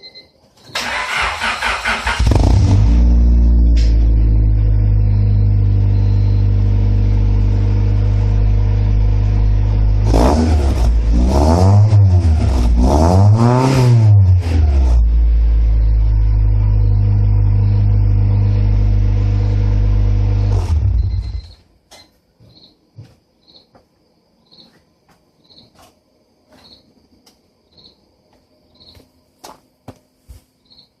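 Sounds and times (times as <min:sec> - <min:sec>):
car engine idling and revving: 0:01.0 - 0:21.6.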